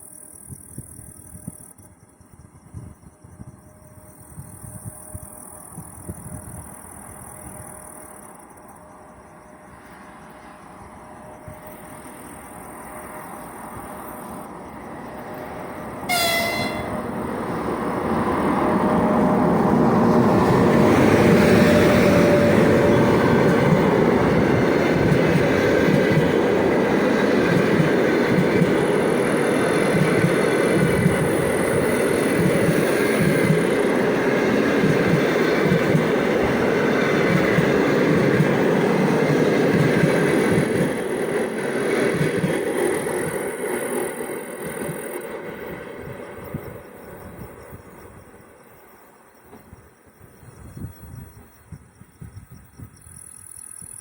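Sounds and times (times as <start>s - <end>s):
train wheels rumbling on rails: 0.0s - 54.0s
locomotive horn blast: 16.0s - 17.1s.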